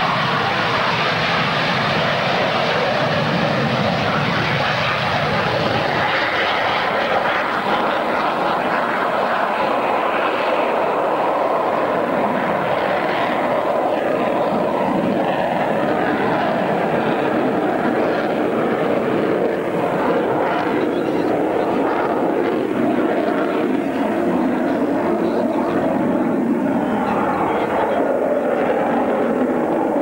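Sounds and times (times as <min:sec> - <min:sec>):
jet engine noise: 0:00.0 - 0:30.0.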